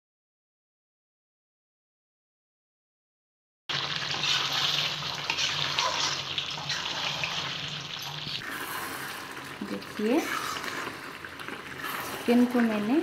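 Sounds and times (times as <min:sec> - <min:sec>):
curry sizzling and bubbling: 0:03.7 - 0:13.0
spatula stirring in pan: 0:03.7 - 0:13.0.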